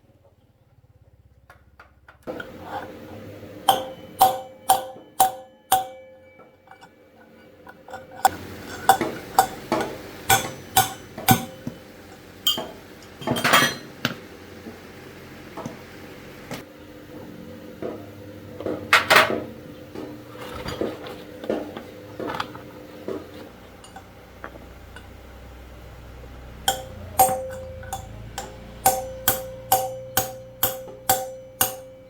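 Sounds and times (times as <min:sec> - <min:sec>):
steady low hum: 0:02.2 - 0:13.8, 0:16.2 - 0:32.0
metal ringing blows: 0:03.7 - 0:06.9, 0:07.9 - 0:11.8, 0:26.6 - 0:32.0.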